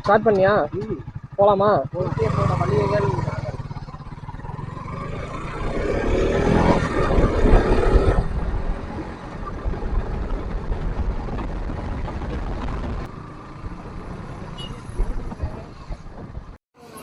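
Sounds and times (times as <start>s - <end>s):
motorcycle engine revving: 0.0s - 16.6s
wind rumble on microphone: 5.6s - 13.1s, 13.7s - 16.6s.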